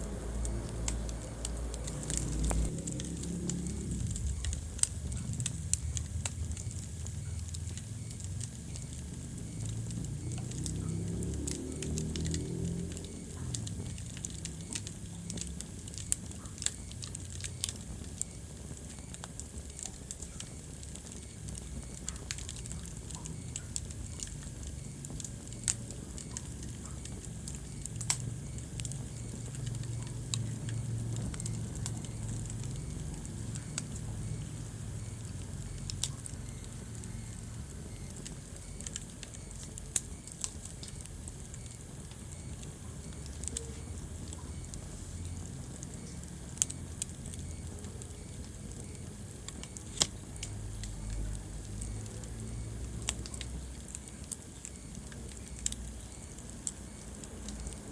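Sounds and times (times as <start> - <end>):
fire pops and snaps: 0.0 - 57.9
low rumble of flame: 0.0 - 57.9
wood fire crackling: 0.0 - 57.9.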